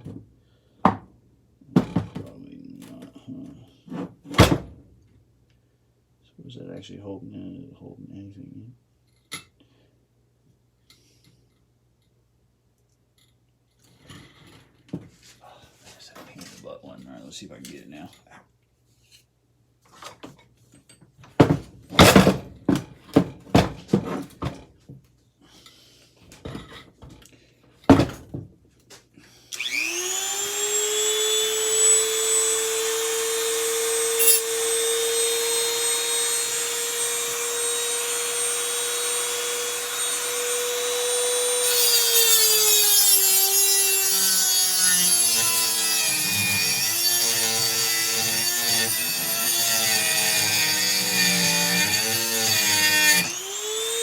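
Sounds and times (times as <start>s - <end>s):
small power tool whining: 29.5s - 54.0s.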